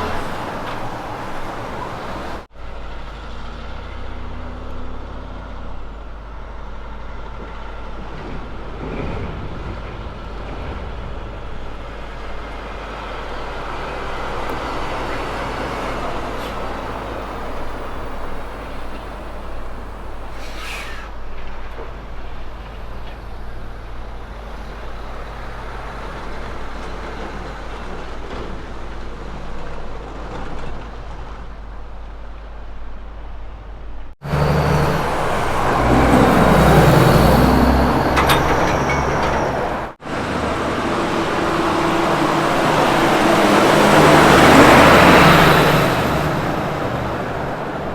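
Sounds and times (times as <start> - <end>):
diesel truck engine: 0.0 - 47.9
tyre and road noise: 0.0 - 47.9
brief hiss: 20.3 - 21.4.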